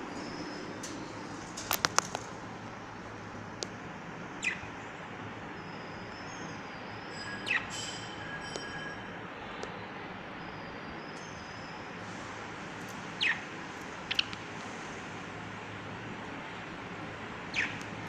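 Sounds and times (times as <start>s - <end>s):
steady background hum: 0.0s - 18.0s
parrot shrill calls: 7.1s - 8.9s.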